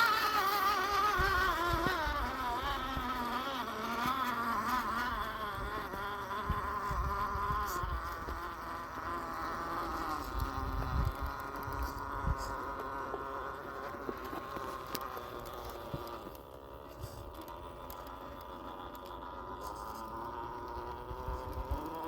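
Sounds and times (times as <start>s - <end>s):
electric motor whining: 0.0s - 22.0s.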